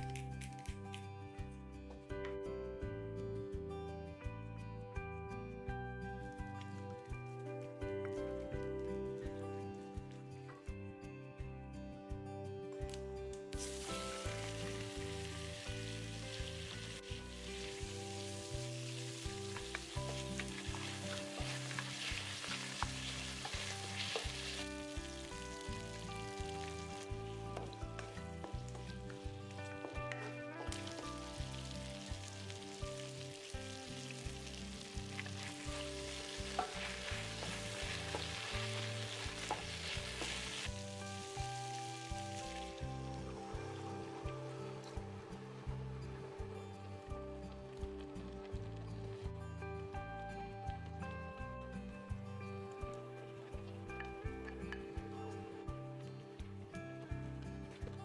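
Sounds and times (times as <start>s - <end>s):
background music: 0.0s - 58.0s
food sizzling in a pan: 13.6s - 46.6s.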